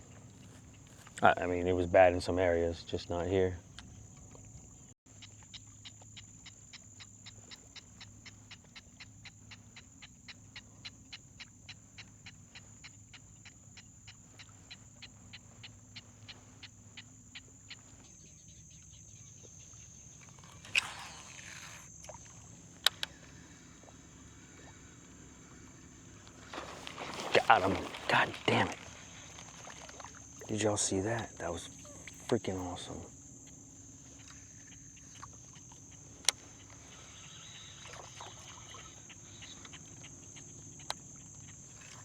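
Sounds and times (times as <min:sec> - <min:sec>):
fishing reel ticking: 0:19.6 - 0:33.0, 0:33.9 - 0:42.0.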